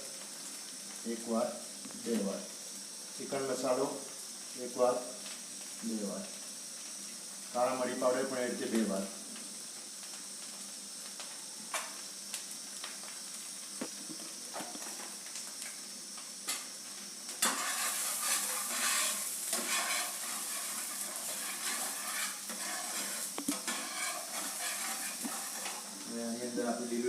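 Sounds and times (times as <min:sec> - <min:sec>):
gravy sizzling in a pan: 0:00.0 - 0:27.0
spoon stirring: 0:17.4 - 0:25.9.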